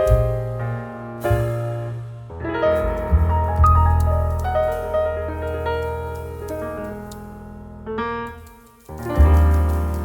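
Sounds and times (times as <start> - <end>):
piano music: 0.0 - 10.0.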